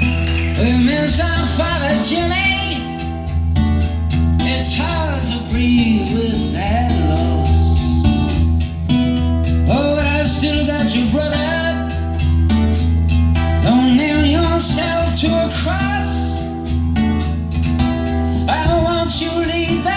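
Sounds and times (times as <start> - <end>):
person singing: 0.0 - 3.2, 4.4 - 8.3
steady bass line: 0.0 - 13.7
guitar: 0.0 - 19.9.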